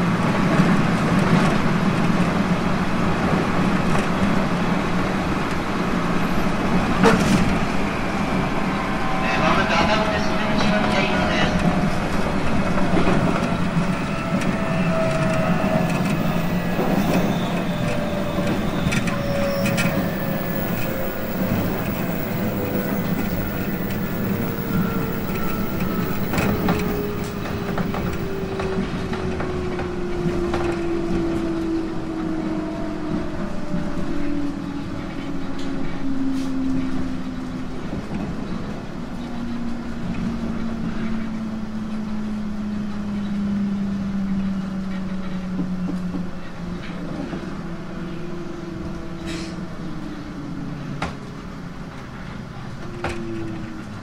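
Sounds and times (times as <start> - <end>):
train motor and gear whine: 3.8 - 36.1.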